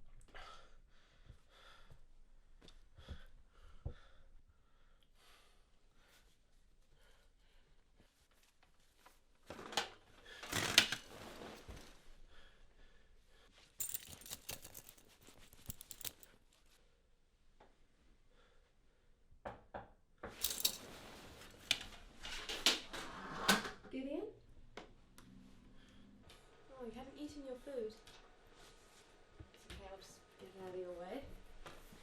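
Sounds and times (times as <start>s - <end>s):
small hard objects clinking: 13.8s - 16.3s, 20.4s - 20.8s.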